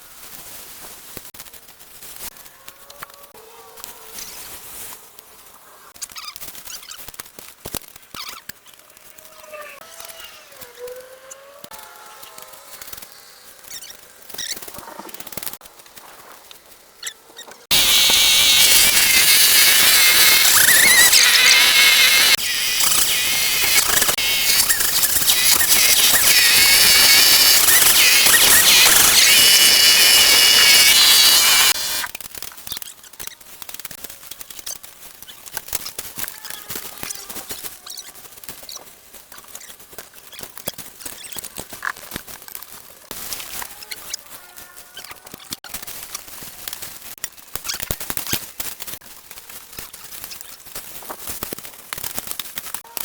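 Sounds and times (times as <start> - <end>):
machine hissing rush with whine: 17.7 - 32.1.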